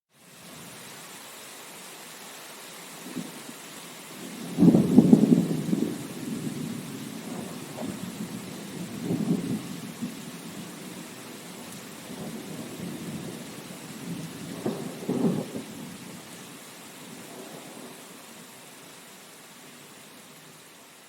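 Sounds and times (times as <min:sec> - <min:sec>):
steady rain: 0:00.1 - 0:21.0
thunder rumbling: 0:04.2 - 0:16.4.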